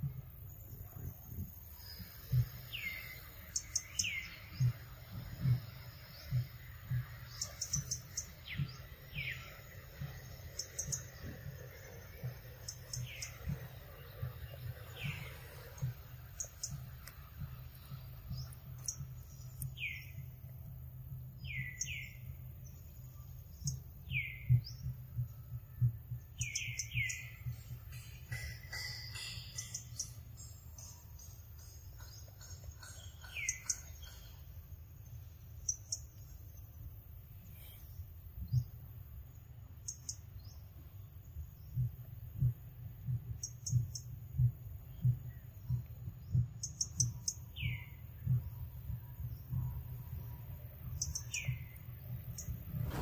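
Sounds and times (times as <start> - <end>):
soft low thumps: 0.0 - 28.3, 40.4 - 53.0.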